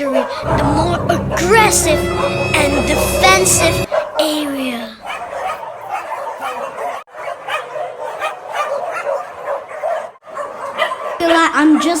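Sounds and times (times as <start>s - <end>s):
many dogs barking and yipping: 0.0s - 12.0s.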